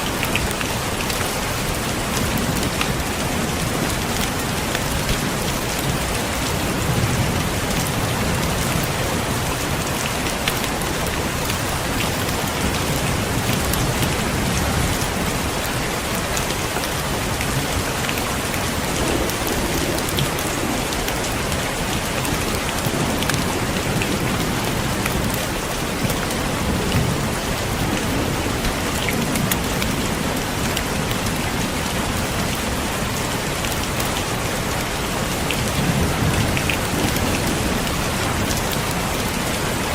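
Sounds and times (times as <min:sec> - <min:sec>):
heavy rain pattering: 0:00.0 - 0:39.9
thunder rumbles: 0:01.9 - 0:31.0.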